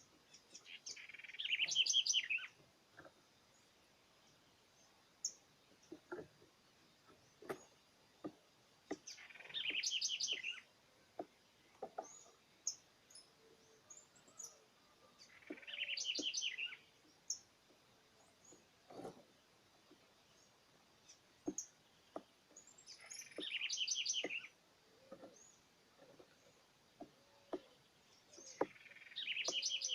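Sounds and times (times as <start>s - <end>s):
songbird twittering song: 0.0s - 29.9s.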